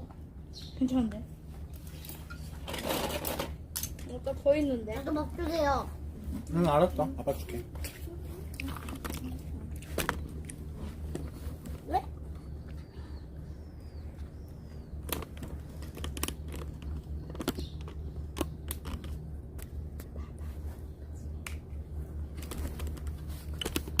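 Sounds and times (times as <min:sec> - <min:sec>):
low hum: 0:00.0 - 0:24.0
low outdoor rumble: 0:00.0 - 0:24.0.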